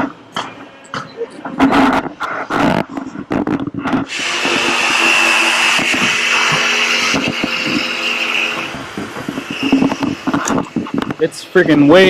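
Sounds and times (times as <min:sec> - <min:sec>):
power tool whining: 0:04.0 - 0:12.0.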